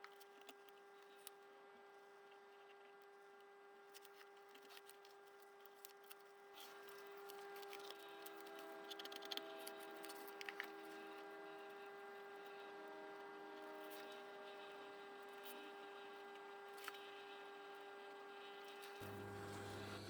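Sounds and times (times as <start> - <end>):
steady hum: 19.0 - 20.0.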